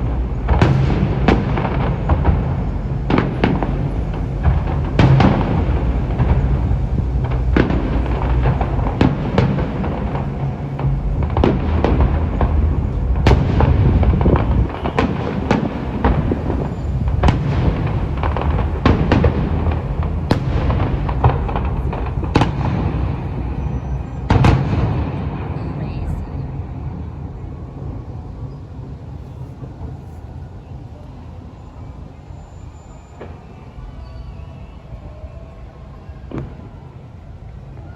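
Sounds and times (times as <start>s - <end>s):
continuous low rumble: 0.0s - 37.9s
firework shells bursting: 0.1s - 25.1s.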